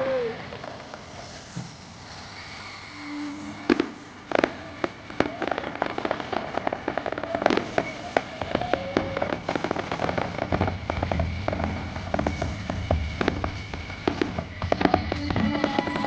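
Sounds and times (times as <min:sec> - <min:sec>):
firework whistling: 0:00.0 - 0:16.0
fireworks crackling and banging: 0:00.0 - 0:16.0
deep firework booms: 0:03.6 - 0:16.0.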